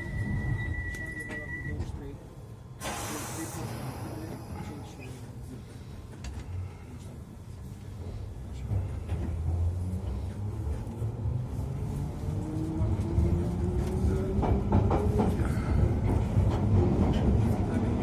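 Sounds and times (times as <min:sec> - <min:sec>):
train low rumble: 0:00.0 - 0:18.0.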